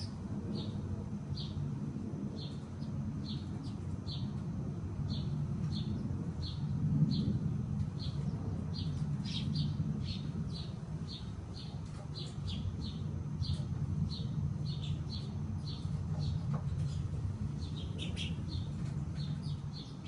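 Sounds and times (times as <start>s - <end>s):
small bird chirping: 8.0s - 20.0s.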